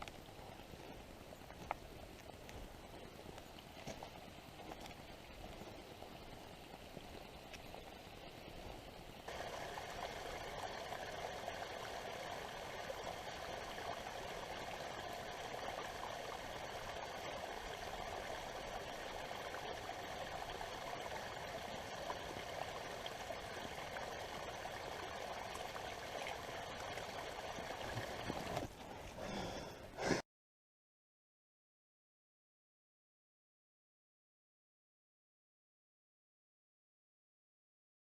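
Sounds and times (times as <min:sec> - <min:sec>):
creek water rushing and trickling: 0:00.0 - 0:29.2.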